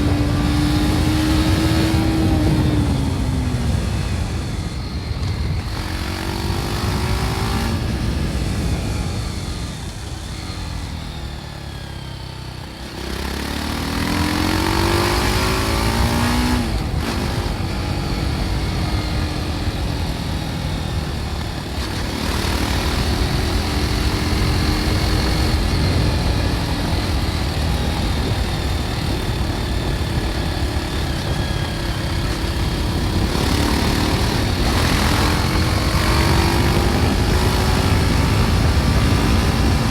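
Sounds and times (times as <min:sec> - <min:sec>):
gear change: 0:00.0 - 0:39.9
motorcycle engine revving: 0:00.0 - 0:39.9.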